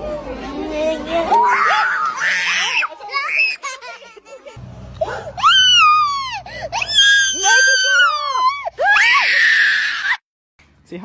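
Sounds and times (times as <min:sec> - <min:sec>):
child screaming: 0:01.3 - 0:03.6, 0:05.4 - 0:10.2.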